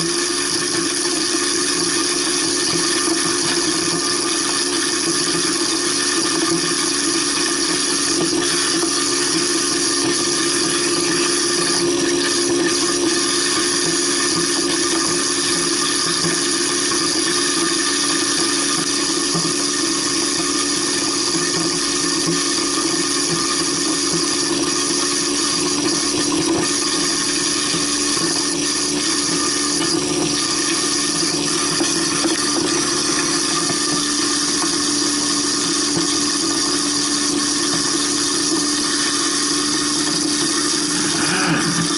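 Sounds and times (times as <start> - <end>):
garbage disposal grinding bone: 0.0 - 41.9
water flowing: 28.1 - 41.9.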